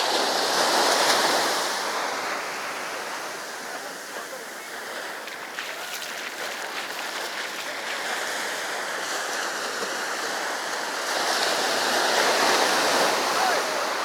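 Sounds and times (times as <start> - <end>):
waves washing up beach: 0.0 - 14.0.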